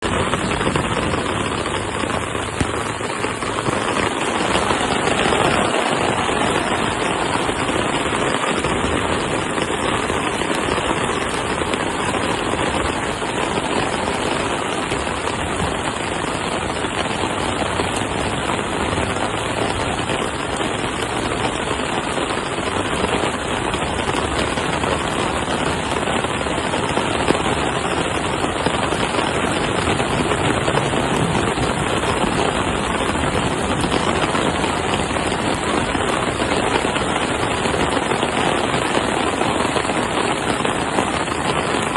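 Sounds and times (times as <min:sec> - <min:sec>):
heavy rain pouring: 0:00.0 - 0:41.9.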